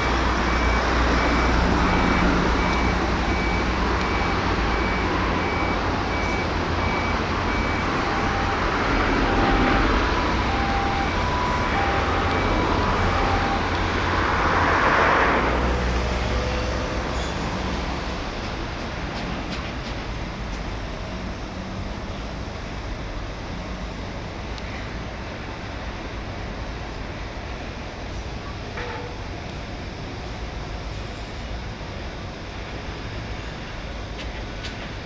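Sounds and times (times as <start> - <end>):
high electronic warning beep: 0.0 - 9.8, 10.4 - 13.8
lower two-pitch warning beep: 0.0 - 9.8, 10.5 - 13.8
rumble of traffic and machinery: 0.0 - 35.0.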